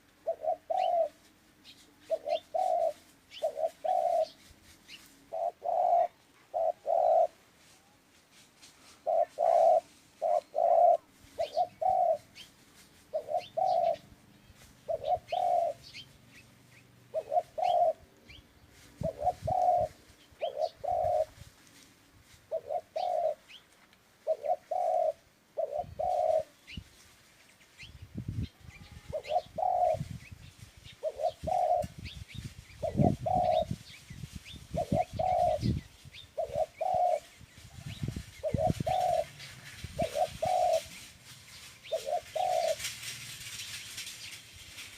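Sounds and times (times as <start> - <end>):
dove cooing: 0.2 - 1.3, 2.0 - 4.4, 5.3 - 7.4, 9.0 - 12.5, 13.1 - 14.1, 14.8 - 16.0, 17.1 - 18.4, 19.0 - 21.4, 22.5 - 23.6, 24.2 - 26.6, 28.7 - 30.2, 31.0 - 32.1, 32.8 - 33.9, 34.7 - 41.1, 41.8 - 43.1
small birds chirping: 0.3 - 7.3, 8.9 - 21.3, 22.5 - 44.9.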